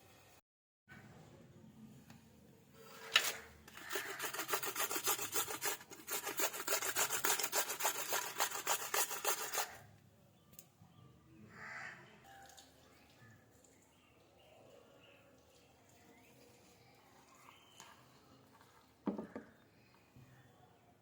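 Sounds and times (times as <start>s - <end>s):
rapid rubbing or scraping strokes: 2.8s - 9.8s.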